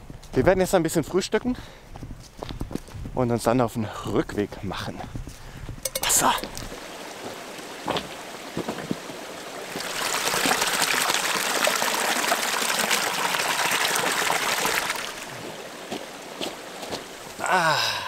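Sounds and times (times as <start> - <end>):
water pouring: 9.6 - 15.8.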